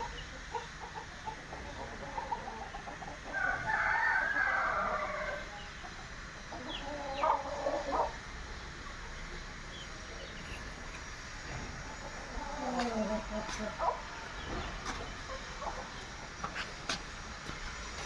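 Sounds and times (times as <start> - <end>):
chickens clucking: 0.0 - 18.0
rooster crowing: 3.3 - 5.6, 12.0 - 16.0.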